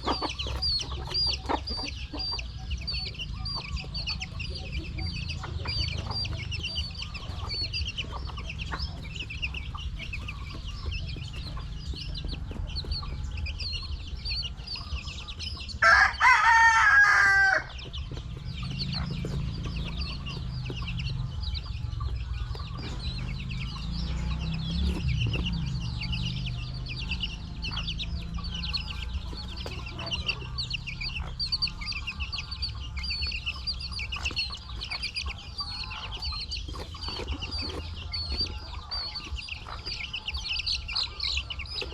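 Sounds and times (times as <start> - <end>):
chickens calling: 0.0 - 41.9
rooster crowing: 15.8 - 17.8.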